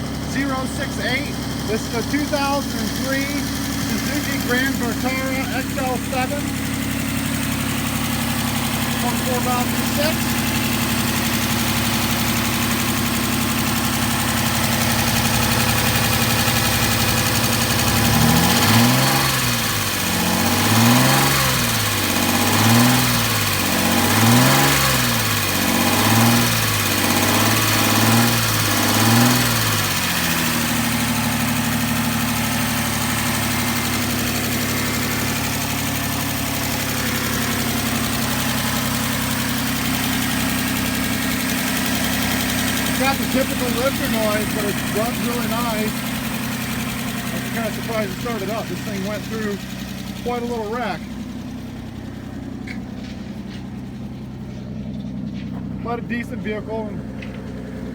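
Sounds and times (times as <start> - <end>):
car engine idling and revving: 0.0 - 57.9
engine lifter ticking: 0.0 - 57.9.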